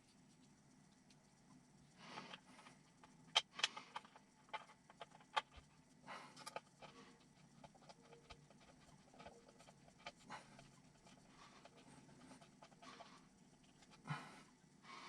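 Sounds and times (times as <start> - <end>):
plastic and metal parts clicking: 2.1 - 5.7, 6.4 - 14.0.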